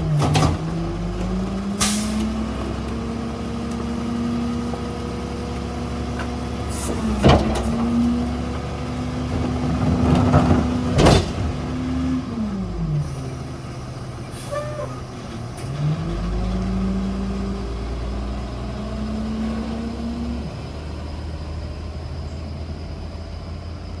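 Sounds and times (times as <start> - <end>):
truck engine revving and idling: 0.0 - 24.0.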